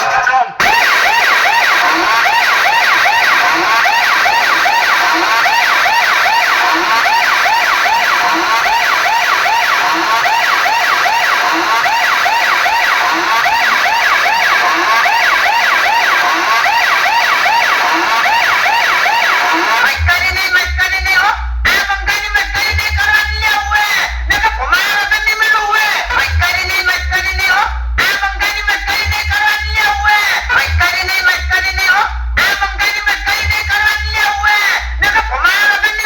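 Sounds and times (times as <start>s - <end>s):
heavy bass music: 0.0s - 36.0s
electronic siren wailing: 0.6s - 20.8s.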